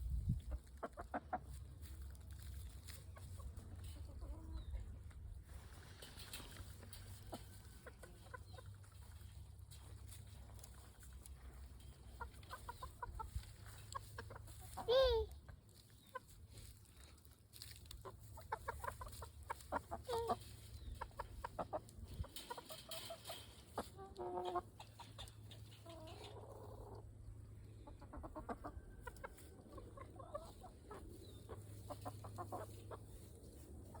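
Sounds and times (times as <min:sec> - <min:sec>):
chickens clucking: 0:00.0 - 0:34.0.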